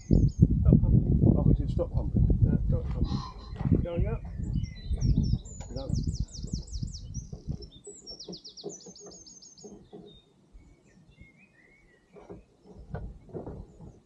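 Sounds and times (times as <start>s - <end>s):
small bird singing: 0.0s - 0.5s, 3.1s - 14.0s
faint low knocks: 2.8s - 10.3s, 12.1s - 14.0s.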